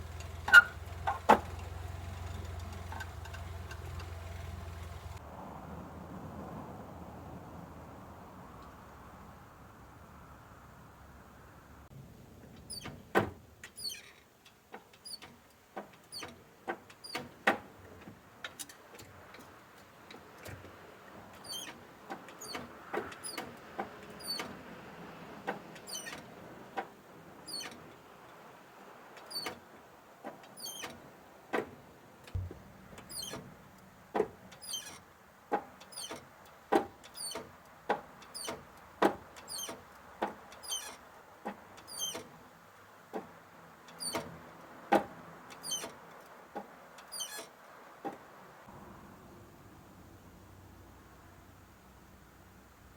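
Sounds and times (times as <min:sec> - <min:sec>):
clutch pedal linkage squeaking: 0:00.1 - 0:05.2, 0:13.6 - 0:17.4, 0:21.4 - 0:23.5, 0:24.2 - 0:24.6, 0:25.8 - 0:26.3, 0:27.5 - 0:27.8, 0:29.2 - 0:29.6, 0:30.5 - 0:31.0, 0:32.3 - 0:33.5, 0:34.6 - 0:35.1, 0:35.8 - 0:36.4, 0:37.0 - 0:37.5, 0:38.2 - 0:38.6, 0:39.4 - 0:39.9, 0:40.5 - 0:42.4, 0:43.9 - 0:44.3, 0:45.6 - 0:46.0, 0:47.0 - 0:47.5.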